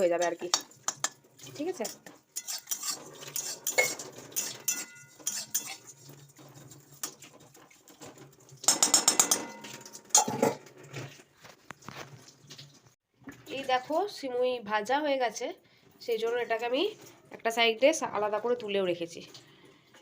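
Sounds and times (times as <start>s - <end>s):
spatula scraping a metal pan: 0.4s - 7.4s.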